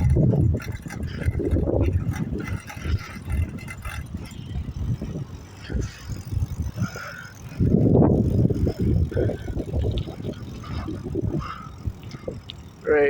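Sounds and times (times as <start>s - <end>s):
wind buffeting: 0.0s - 13.0s.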